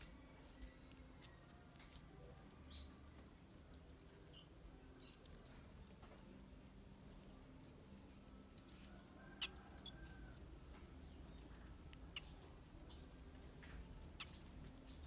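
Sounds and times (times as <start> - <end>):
bird chips and clicks: 2.7 - 5.7.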